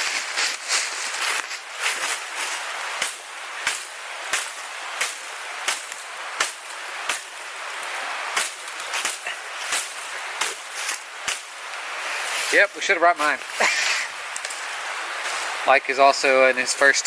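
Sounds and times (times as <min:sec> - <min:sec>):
rushing water: 0:00.0 - 0:17.0
machete chopping wood: 0:03.0 - 0:07.4, 0:08.3 - 0:11.6.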